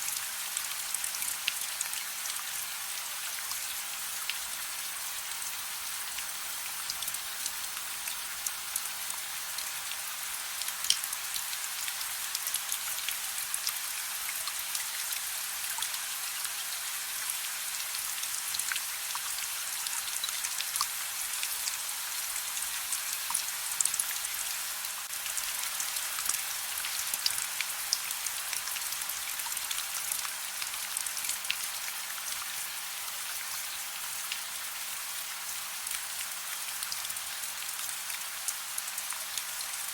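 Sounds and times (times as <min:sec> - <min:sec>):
soft rain: 0:00.0 - 0:39.9
raindrops ticking on a surface: 0:05.4 - 0:16.0, 0:25.0 - 0:32.5.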